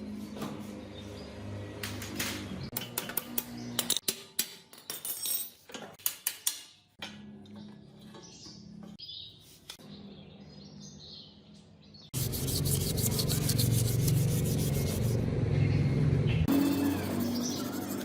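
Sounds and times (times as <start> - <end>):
sanding rasping strokes: 12.2 - 15.2, 16.5 - 18.0.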